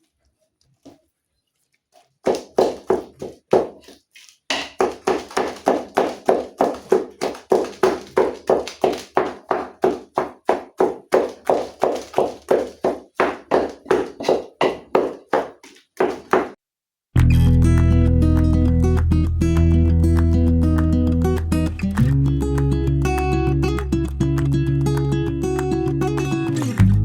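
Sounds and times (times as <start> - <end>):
food mashing thuds in pot: 2.5 - 16.6.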